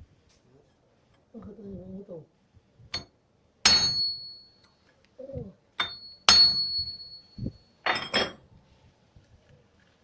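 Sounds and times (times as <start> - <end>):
hammer striking metal ringing: 3.0 - 4.7, 5.8 - 8.4.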